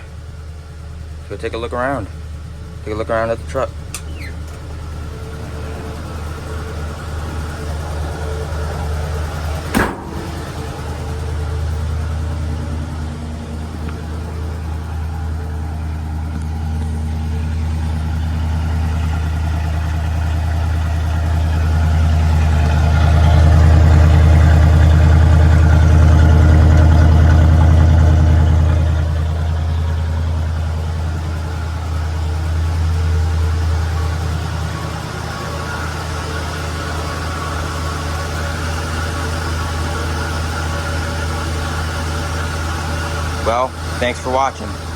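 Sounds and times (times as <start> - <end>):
engine running at fast idle: 0.0 - 44.9.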